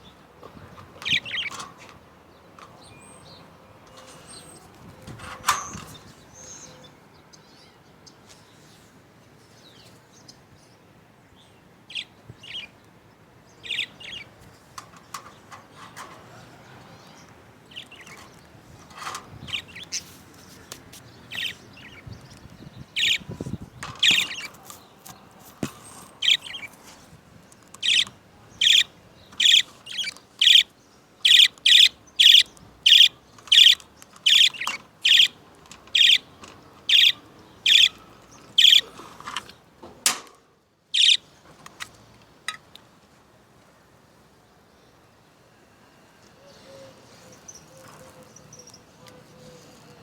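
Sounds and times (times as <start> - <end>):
budgerigars chirping: 1.0 - 1.6, 13.6 - 14.3, 21.3 - 24.7, 25.6 - 26.8, 27.8 - 38.9, 41.0 - 41.3.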